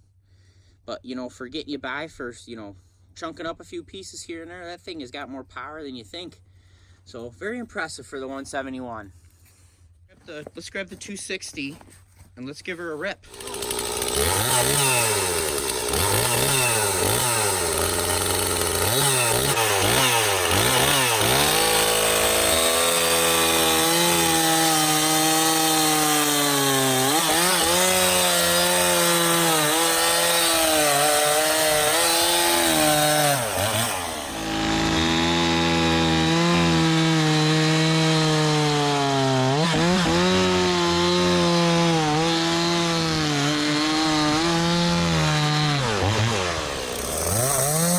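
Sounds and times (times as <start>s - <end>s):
chainsaw cutting through log: 13.2s - 47.9s.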